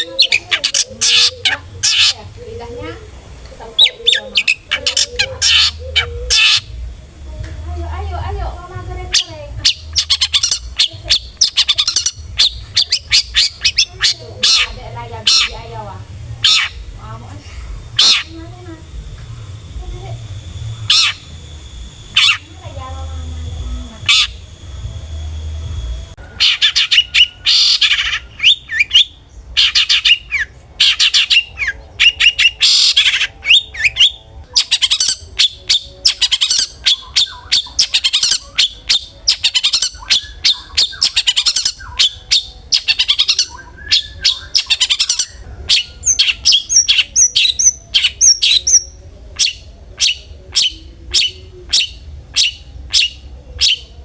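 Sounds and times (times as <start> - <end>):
bird chattering and whistling: 0.0 - 6.8, 8.9 - 18.9, 19.5 - 25.6, 26.2 - 54.0.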